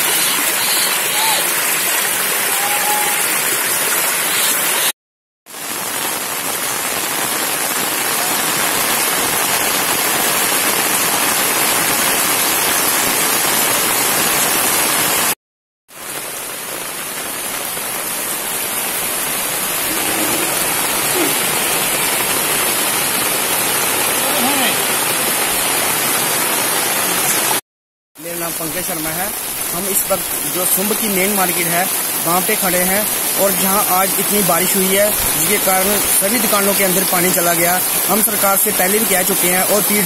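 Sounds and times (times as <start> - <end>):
floodwater running: 0.0 - 4.9, 16.1 - 27.6, 28.2 - 40.0
heavy rain hissing: 0.0 - 4.9, 16.0 - 27.6, 28.2 - 40.0.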